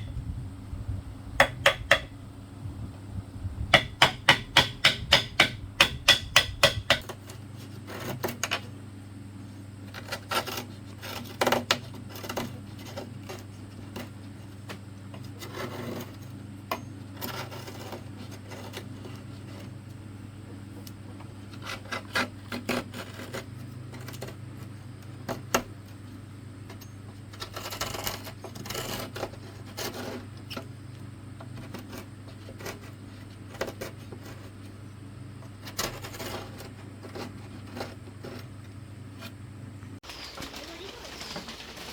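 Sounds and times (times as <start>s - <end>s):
steady low hum: 0.0s - 40.2s
bamboo knocking and rubbing: 3.8s - 8.6s.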